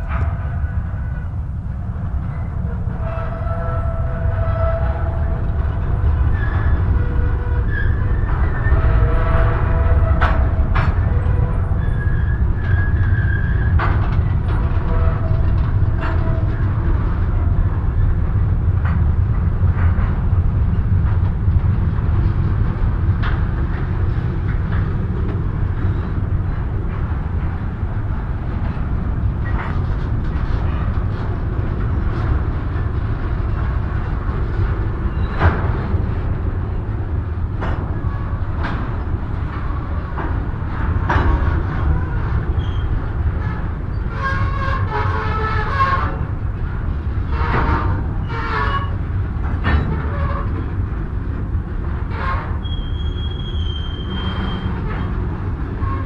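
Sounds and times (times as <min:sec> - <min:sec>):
freight train rumbling: 0:00.0 - 0:56.0
train wheels squeaking: 0:02.2 - 0:16.8, 0:34.9 - 0:36.0, 0:41.1 - 0:46.4, 0:52.1 - 0:56.0
high wheel squeals: 0:11.1 - 0:13.8, 0:42.5 - 0:46.2, 0:52.6 - 0:55.1.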